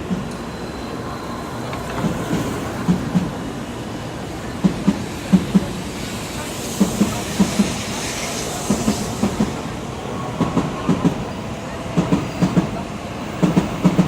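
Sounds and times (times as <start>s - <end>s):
train rumble: 0.0s - 14.0s
train wheels clacking over rail joints: 6.7s - 7.9s, 13.4s - 14.0s.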